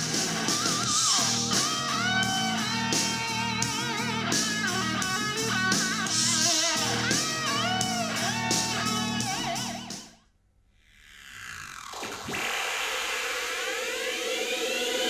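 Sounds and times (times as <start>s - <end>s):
guitar music from small speaker: 0.0s - 10.1s.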